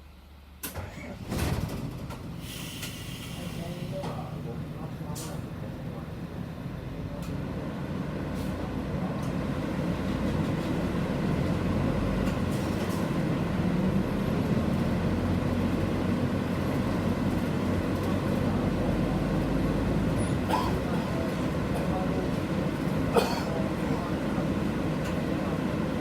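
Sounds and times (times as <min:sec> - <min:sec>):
bus engine running: 0:00.0 - 0:26.0
road rumble: 0:00.1 - 0:26.0.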